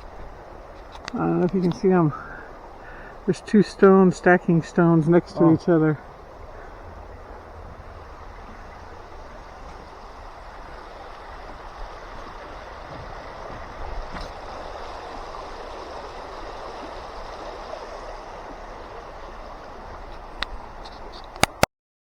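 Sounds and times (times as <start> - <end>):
river water running over stones: 0.0 - 21.7
low rumble: 5.3 - 15.5.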